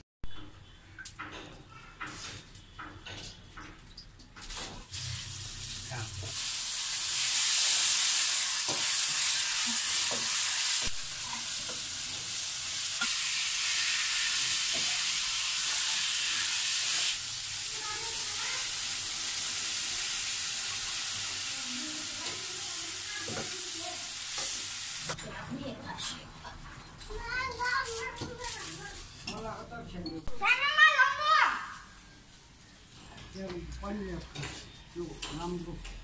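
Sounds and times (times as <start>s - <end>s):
food sizzling in hot oil: 4.4s - 25.2s, 27.1s - 29.3s.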